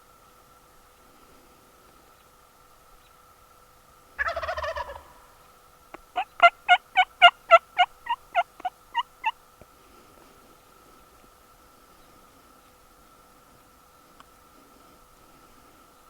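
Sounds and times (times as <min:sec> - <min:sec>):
turkey yelps: 0:04.2 - 0:05.4, 0:06.2 - 0:09.4
wild turkey gobble: 0:04.2 - 0:05.4, 0:06.1 - 0:09.4.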